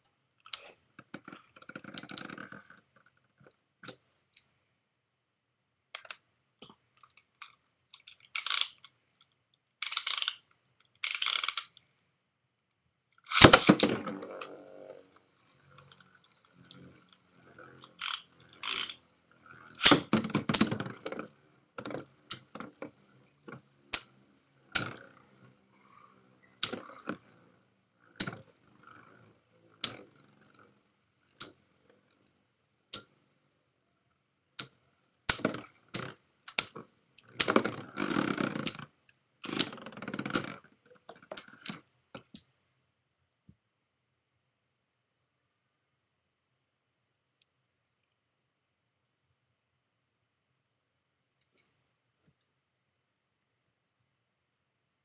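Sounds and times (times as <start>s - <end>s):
spinning tops clacking: 13.3s - 20.9s.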